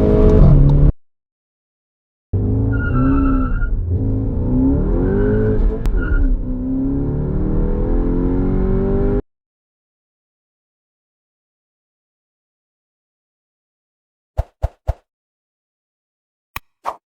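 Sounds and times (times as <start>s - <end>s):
car engine accelerating: 2.4s - 9.2s
sharp click: 16.6s - 17.0s.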